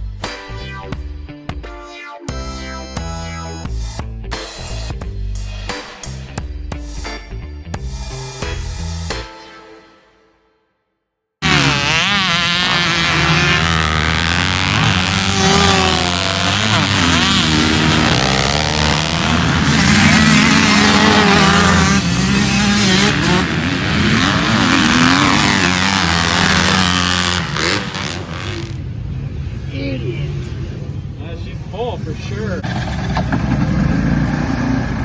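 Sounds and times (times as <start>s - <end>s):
dirt bike engines revving: 11.4s - 31.0s, 32.0s - 35.0s.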